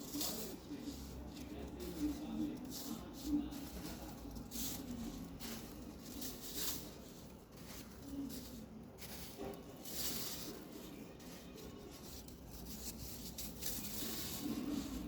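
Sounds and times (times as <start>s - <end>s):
powdery material crunching: 0.0s - 15.0s
small crackles: 0.0s - 15.0s.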